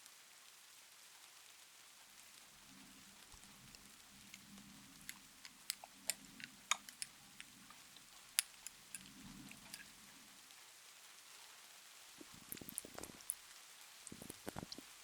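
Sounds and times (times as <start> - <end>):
soft rain hiss: 0.0 - 15.0
sticky wet clicks of serum: 3.2 - 10.0, 12.5 - 13.4.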